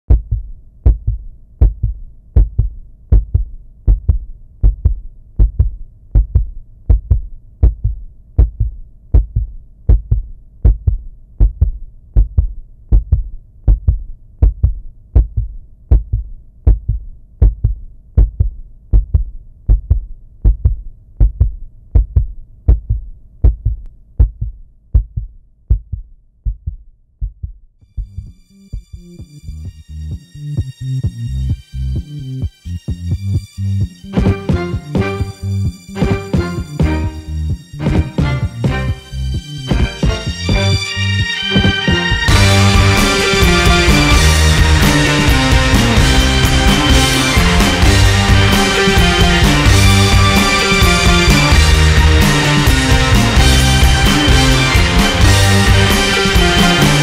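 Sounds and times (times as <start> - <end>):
heartbeat double thump: 0.1 - 29.0, 32.9 - 39.1.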